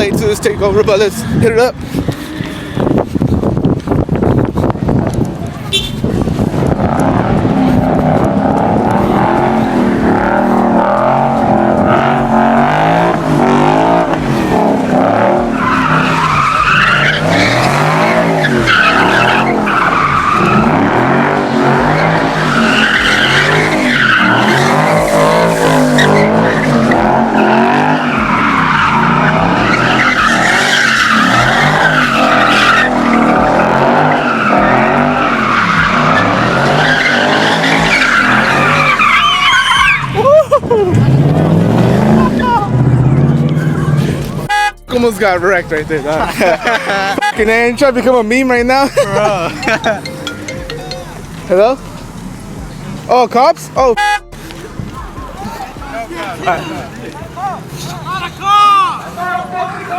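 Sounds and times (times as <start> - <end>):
car engines revving: 0.0 - 59.9
tyre squeal: 21.8 - 40.4.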